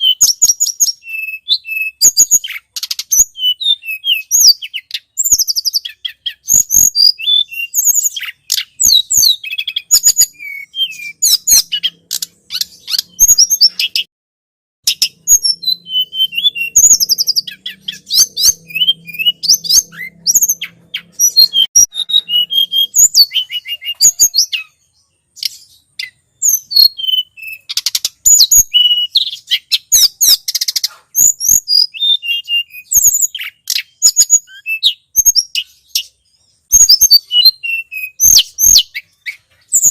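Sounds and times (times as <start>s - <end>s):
bird chirps and trills: 0.0s - 14.1s, 14.8s - 39.9s.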